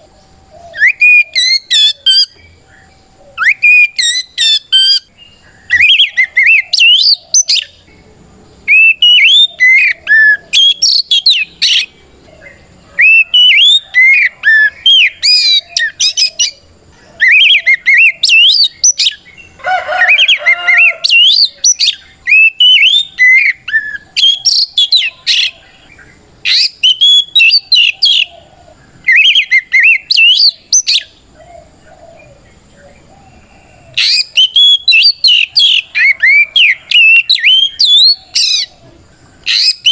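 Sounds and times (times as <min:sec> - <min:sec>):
bird singing whistled phrases: 0:00.6 - 0:07.8, 0:08.7 - 0:11.9, 0:12.5 - 0:16.6, 0:17.2 - 0:19.4, 0:20.0 - 0:25.6, 0:26.5 - 0:28.3, 0:29.1 - 0:31.1, 0:34.0 - 0:38.7, 0:39.5 - 0:39.9.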